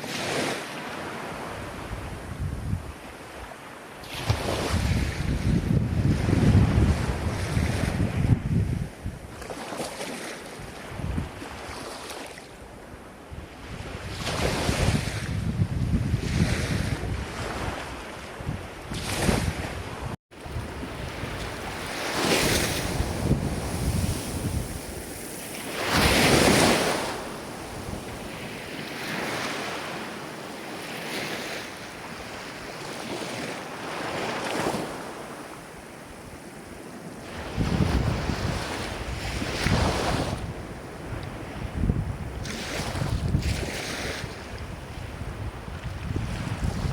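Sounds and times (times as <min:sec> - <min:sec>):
wind buffeting microphone: 0:01.6 - 0:09.5, 0:10.6 - 0:11.8, 0:12.9 - 0:30.1, 0:37.2 - 0:46.9
ocean waves breaking: 0:16.2 - 0:46.9.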